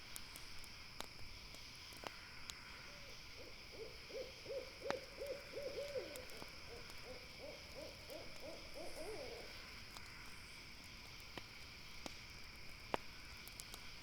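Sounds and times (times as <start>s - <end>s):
fire popping: 0.0s - 3.7s, 6.1s - 8.7s, 9.5s - 14.0s
campfire crackling: 0.0s - 14.0s
owl hooting rapidly: 3.4s - 9.5s.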